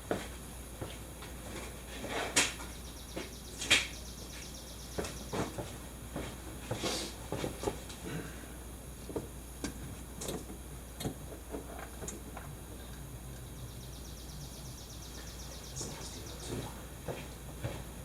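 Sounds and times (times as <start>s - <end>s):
low steady hum: 7.4s - 18.0s.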